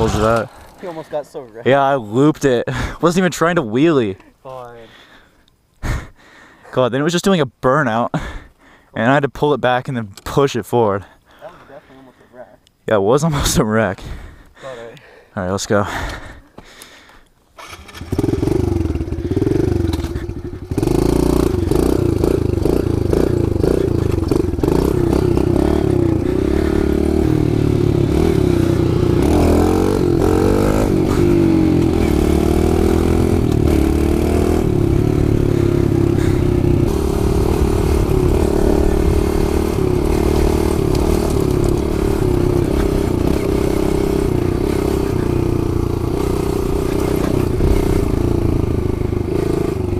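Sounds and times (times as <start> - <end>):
small motorbike engine revving: 17.6 - 49.9.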